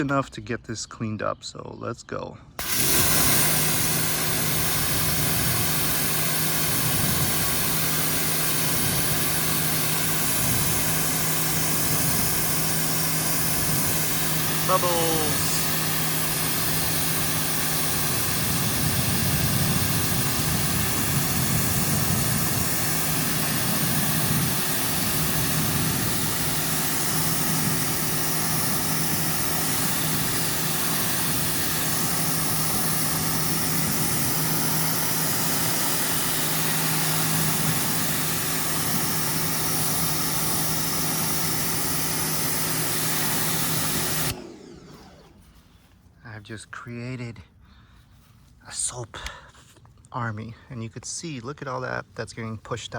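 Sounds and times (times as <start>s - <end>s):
water spray hissing: 2.6s - 44.4s
pressure washer running: 2.6s - 46.1s.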